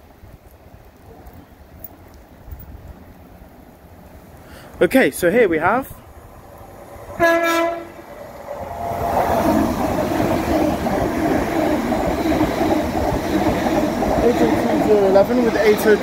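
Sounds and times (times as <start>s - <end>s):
train rumbling past: 1.6s - 16.0s
train horn blast: 7.2s - 8.1s.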